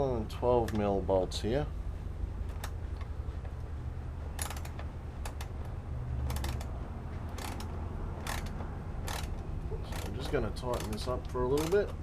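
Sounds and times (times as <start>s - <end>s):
steady low hum: 0.0s - 12.0s
ratchet wrench clicking: 4.4s - 5.5s, 6.2s - 6.7s, 7.3s - 12.0s.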